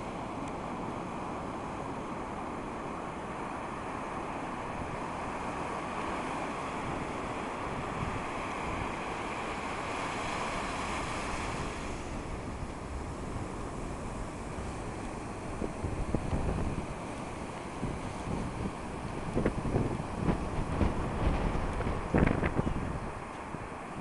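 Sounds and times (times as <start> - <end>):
ocean surf rushing: 0.0 - 24.0
wind buffeting microphone: 11.2 - 24.0.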